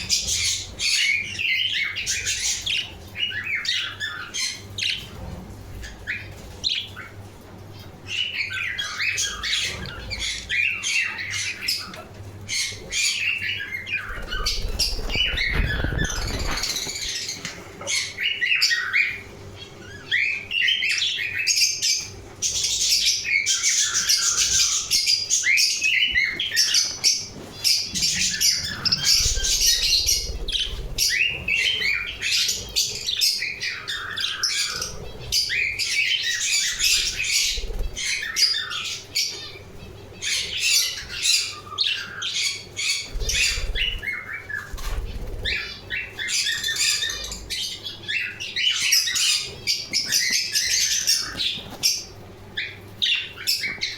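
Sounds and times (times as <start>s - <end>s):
budgerigars chirping and chattering: 0.0s - 53.9s
wing flapping thumps: 14.1s - 17.2s.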